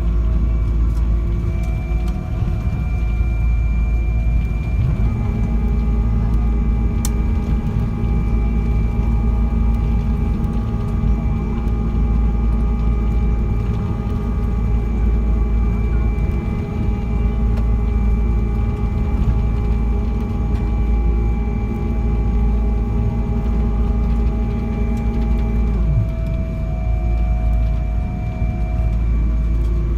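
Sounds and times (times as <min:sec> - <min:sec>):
aircraft engine and airflow rumble: 0:00.0 - 0:29.9
low mechanical hum: 0:00.0 - 0:29.9
whining tones: 0:00.0 - 0:29.9.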